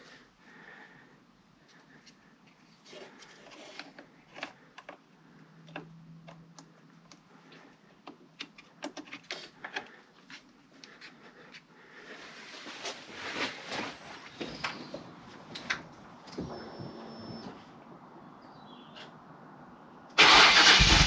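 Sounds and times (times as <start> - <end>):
rustling: 9.2 - 15.0.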